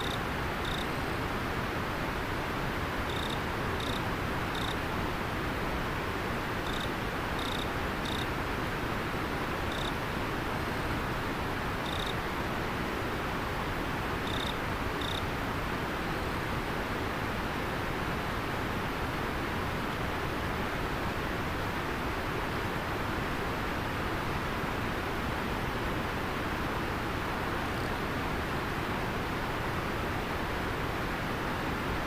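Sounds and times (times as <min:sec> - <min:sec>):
insect chirping: 0:00.0 - 0:00.9, 0:03.1 - 0:04.8, 0:06.6 - 0:08.3, 0:09.7 - 0:10.0, 0:11.8 - 0:12.2, 0:14.2 - 0:15.2.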